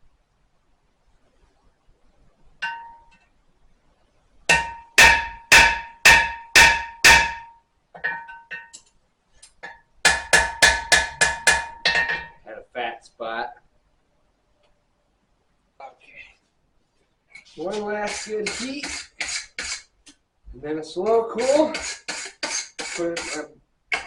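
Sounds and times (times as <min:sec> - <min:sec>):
hammer striking metal on anvil: 0:02.6 - 0:03.2, 0:04.5 - 0:08.8, 0:10.1 - 0:12.4.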